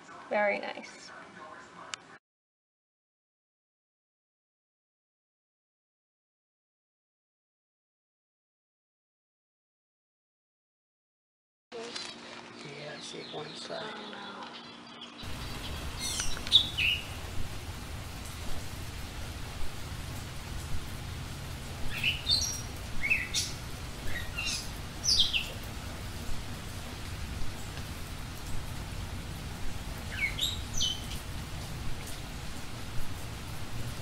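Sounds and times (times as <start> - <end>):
bird chirping: 13.0 - 28.8, 29.5 - 32.4
steady rain hiss: 15.2 - 34.0.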